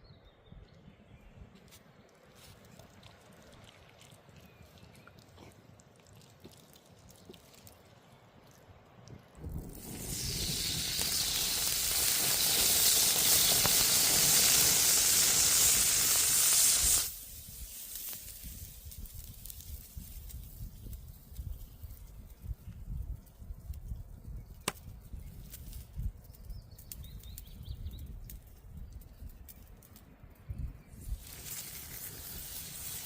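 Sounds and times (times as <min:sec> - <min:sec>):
food frying in hot oil: 0:09.7 - 0:21.0.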